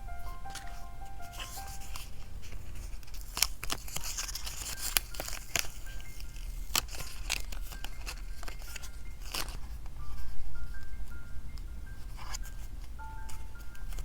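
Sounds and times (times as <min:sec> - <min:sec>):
faint soft background music: 0:00.0 - 0:14.0
paper rustling: 0:00.5 - 0:10.3
scissors cutting: 0:01.9 - 0:09.6.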